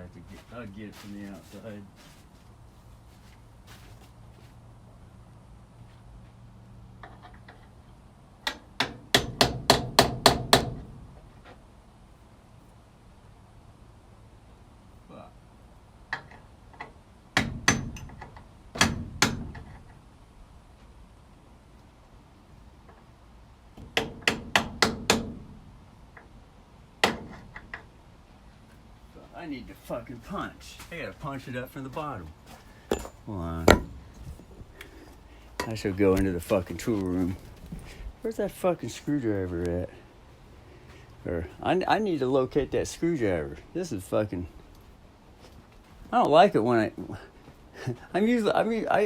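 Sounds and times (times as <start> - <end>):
hammer striking chisel: 8.5 - 10.8, 17.4 - 18.2, 23.9 - 25.4, 32.9 - 34.0.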